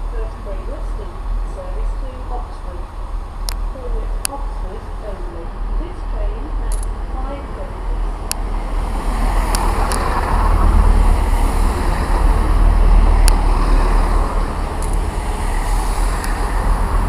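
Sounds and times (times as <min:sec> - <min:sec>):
train rushing past: 0:00.0 - 0:17.0
sharp ticks: 0:03.4 - 0:04.4, 0:06.7 - 0:07.0, 0:09.4 - 0:10.8, 0:14.8 - 0:15.1.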